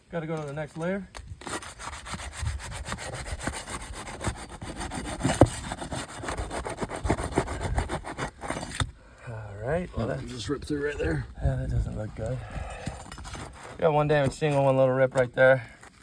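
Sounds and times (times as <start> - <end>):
shingle tearing: 1.1 - 8.9, 12.7 - 16.0.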